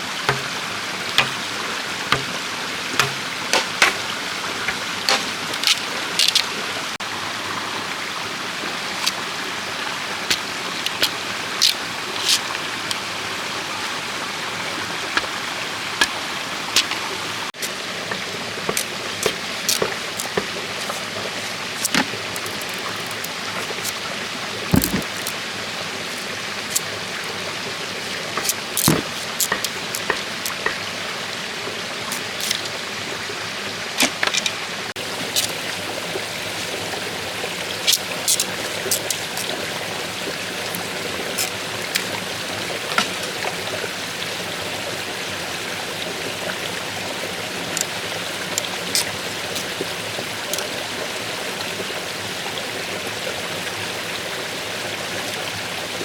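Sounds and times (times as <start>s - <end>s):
sharp knocks and clicks: 0.3s - 0.6s, 1.2s - 1.5s, 2.1s - 4.0s, 24.7s - 25.3s, 28.4s - 30.8s.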